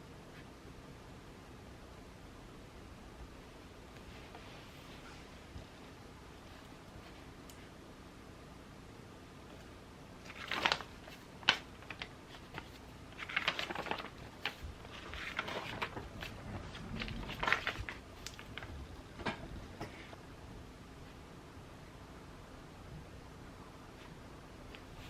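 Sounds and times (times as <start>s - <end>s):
paper rustling and scratching: 10.2s - 18.7s.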